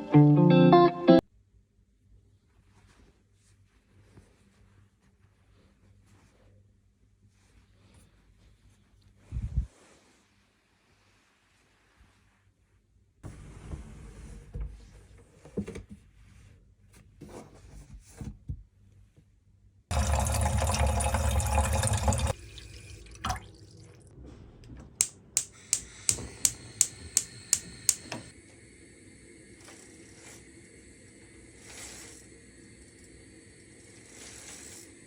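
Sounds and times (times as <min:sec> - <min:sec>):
tap running: 0:19.9 - 0:23.5, 0:24.8 - 0:28.3
sharp clicks: 0:25.0 - 0:28.3.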